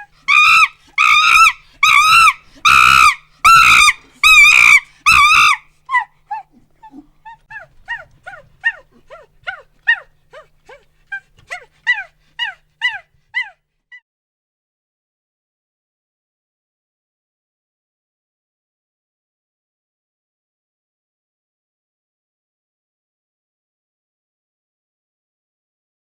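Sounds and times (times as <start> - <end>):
monkey screeching: 0.0 - 13.6
monkey yelping: 0.0 - 13.6.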